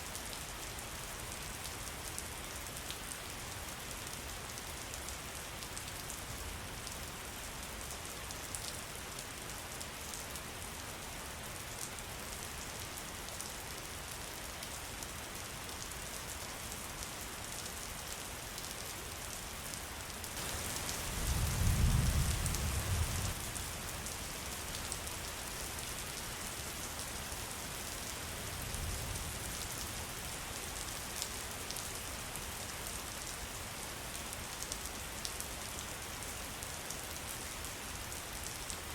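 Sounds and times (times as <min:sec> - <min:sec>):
steady rain falling: 0:00.0 - 0:38.9
thunder rumbling: 0:20.4 - 0:23.4.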